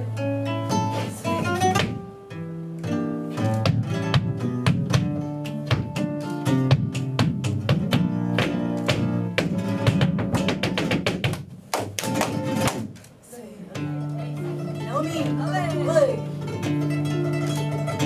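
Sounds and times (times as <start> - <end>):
flamenco guitar playing: 0.0 - 18.0.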